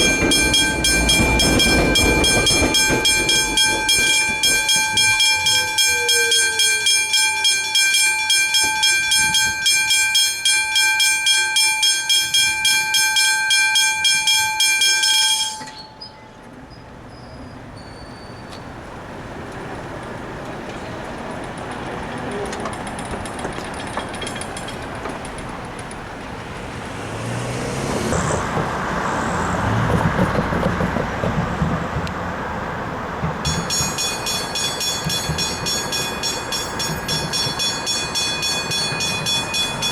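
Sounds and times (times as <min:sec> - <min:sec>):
train rumbling: 0:00.0 - 0:10.4, 0:13.8 - 0:39.9
level crossing warning bells: 0:00.0 - 0:16.5, 0:33.4 - 0:39.9.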